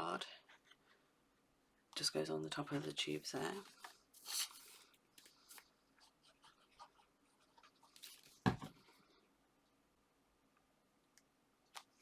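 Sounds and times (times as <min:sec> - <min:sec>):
card stock rustling: 0:03.4 - 0:05.7
loud thump on tabletop: 0:08.4 - 0:08.7.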